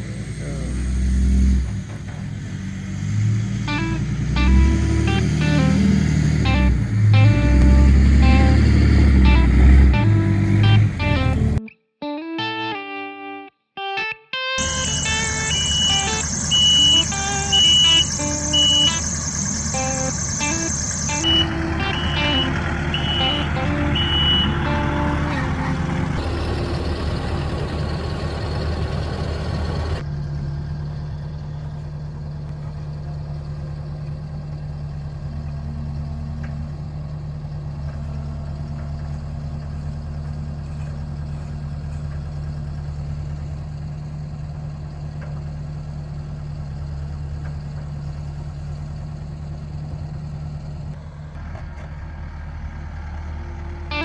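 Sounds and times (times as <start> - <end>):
truck engine running: 0.0 - 11.6, 14.6 - 54.0
reversing alarm beeps: 14.6 - 25.2.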